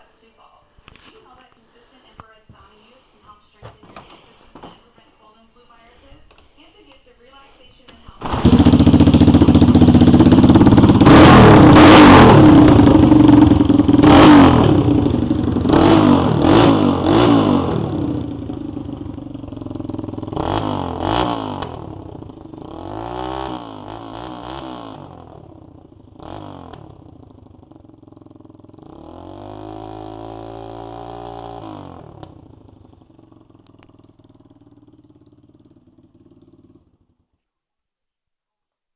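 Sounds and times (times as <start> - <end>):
motorcycle engine revving: 8.2 - 37.2.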